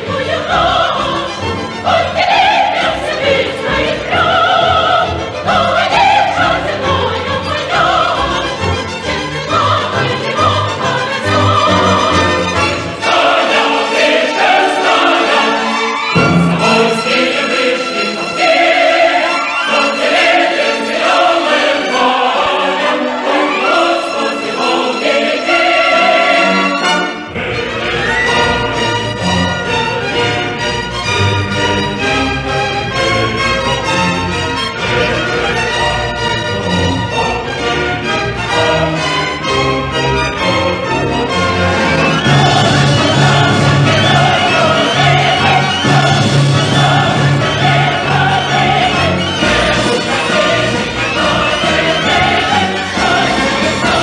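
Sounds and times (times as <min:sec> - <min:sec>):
operatic singing voice: 0:00.0 - 0:29.0, 0:41.7 - 0:54.0
full orchestra: 0:00.0 - 0:54.0.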